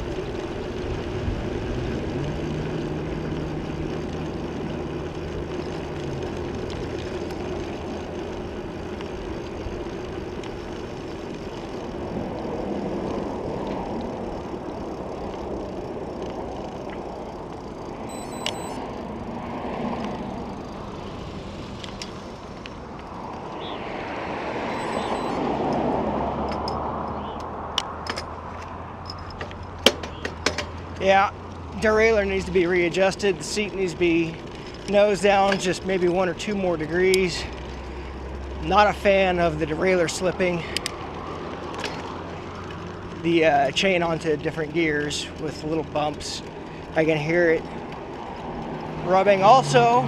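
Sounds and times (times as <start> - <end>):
motor vehicle passing: 0.0 - 50.0
wind and road noise: 0.0 - 50.0.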